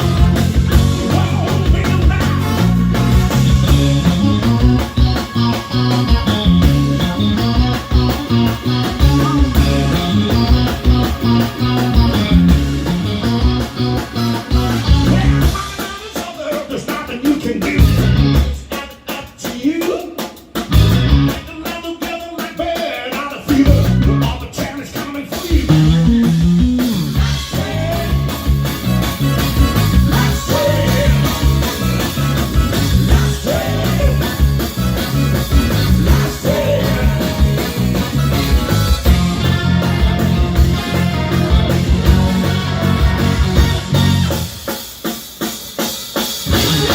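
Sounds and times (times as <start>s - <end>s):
repeating bass line: 0.0s - 15.6s, 17.8s - 18.6s, 20.7s - 21.4s, 23.6s - 24.4s, 25.6s - 44.6s, 46.5s - 46.9s
blues band playing live: 0.0s - 46.9s
steady drum beat: 0.0s - 46.9s.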